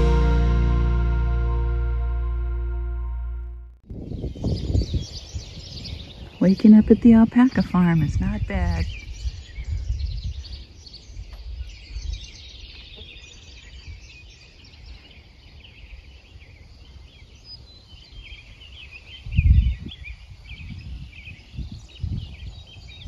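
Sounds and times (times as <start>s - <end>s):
low rumble: 0.0s - 3.8s
small birds chirping: 3.9s - 23.0s.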